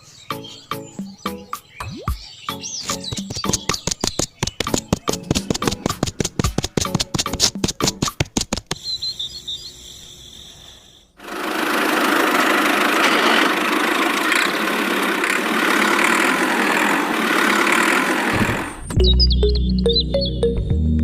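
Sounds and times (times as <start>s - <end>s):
sharp knocks: 2.9s - 8.8s
small motor buzzing: 11.2s - 18.9s.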